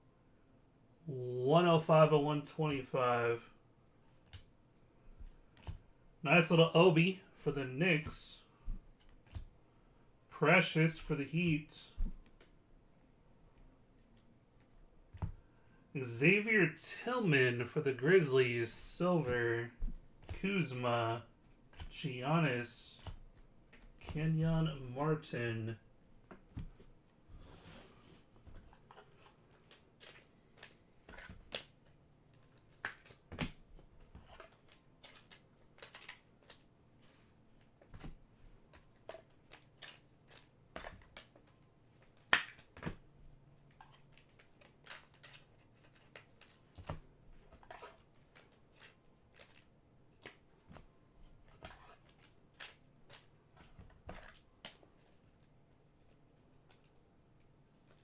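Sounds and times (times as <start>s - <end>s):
trading cards handled on table: 26.3s - 43.0s, 43.6s - 57.0s.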